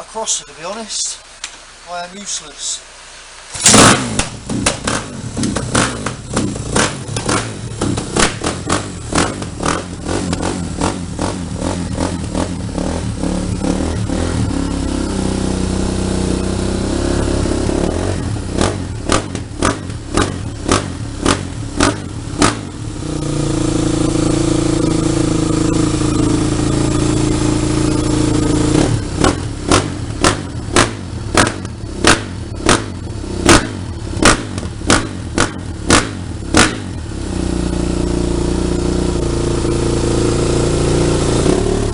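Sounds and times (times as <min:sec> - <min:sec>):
dirt bike engine revving: 0:03.5 - 0:41.9.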